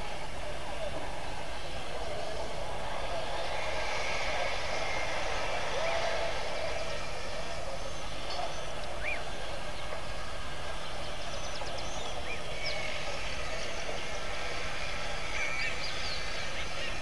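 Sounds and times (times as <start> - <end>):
steady rushing hiss: 0.0 - 17.0
birds whistling: 7.8 - 9.3, 11.1 - 14.3.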